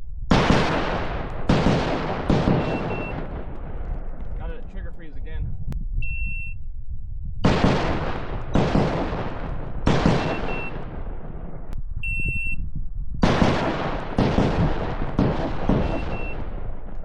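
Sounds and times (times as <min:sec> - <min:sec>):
pistol shots: 0:00.3 - 0:04.2, 0:07.4 - 0:11.6, 0:13.2 - 0:17.0
shot timer beep: 0:02.6 - 0:03.2, 0:06.0 - 0:06.7, 0:10.2 - 0:10.9, 0:12.0 - 0:12.7, 0:15.8 - 0:16.4.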